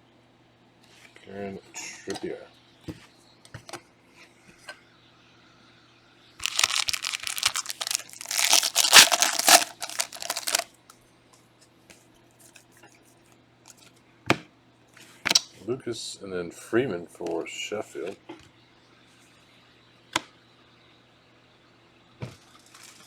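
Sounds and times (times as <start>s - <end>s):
card pack wrapper tearing: 6.4s - 10.6s.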